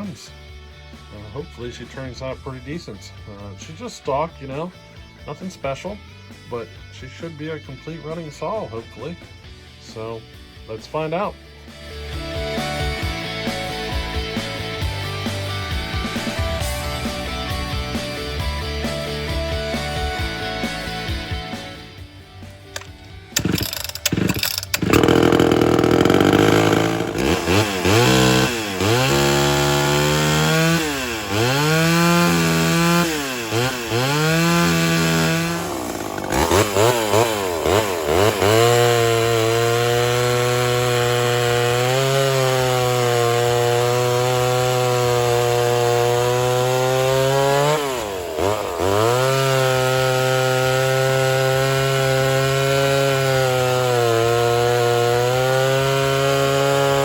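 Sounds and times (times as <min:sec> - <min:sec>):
chainsaw revving: 0:22.7 - 0:57.0.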